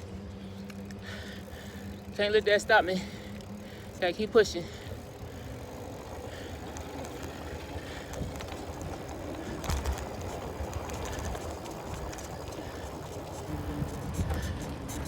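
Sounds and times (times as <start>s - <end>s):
wind and tyres rumbling: 0.0s - 15.0s.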